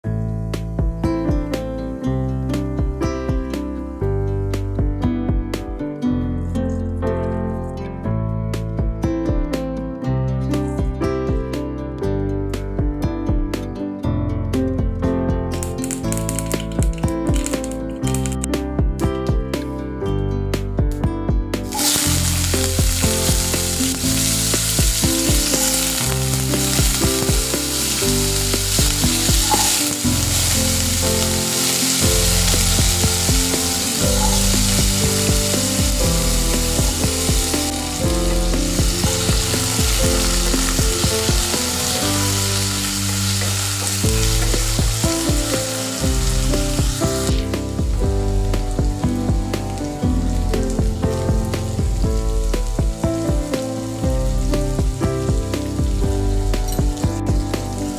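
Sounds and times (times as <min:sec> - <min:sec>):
background music: 0:00.0 - 0:57.9
potatoes sizzling in hot oil: 0:15.6 - 0:18.4, 0:21.6 - 0:57.9.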